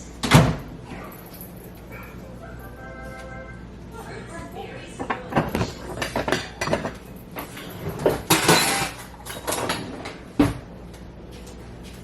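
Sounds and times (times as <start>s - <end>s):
pans and utensils clinking: 4.9s - 10.2s.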